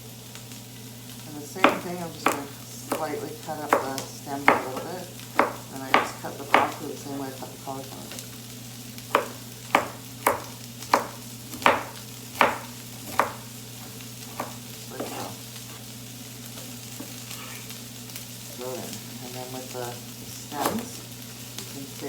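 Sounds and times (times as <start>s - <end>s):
vegetables sizzling in a frying pan: 0.0s - 22.0s
utensil knocking against pan: 9.1s - 13.4s.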